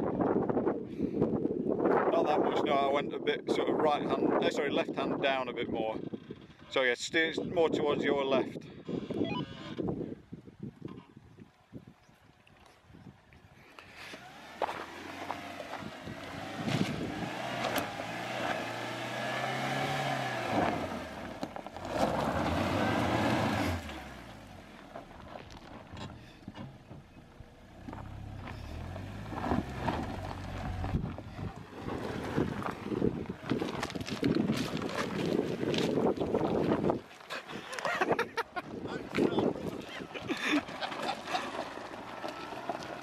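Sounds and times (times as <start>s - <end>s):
car engine revving in low gear: 14.1s - 24.7s, 27.8s - 33.2s.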